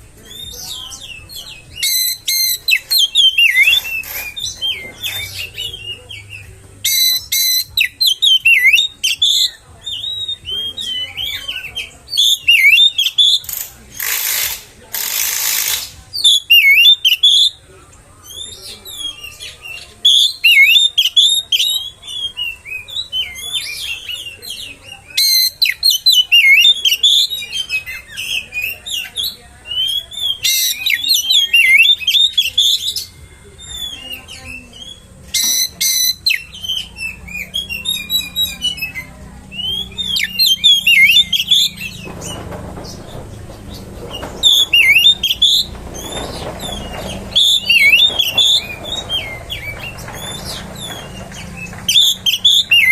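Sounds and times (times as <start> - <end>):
bird chattering: 0.0 - 17.6, 18.3 - 52.9
bird singing whistled phrases: 0.3 - 14.5, 15.1 - 17.6, 18.3 - 42.0.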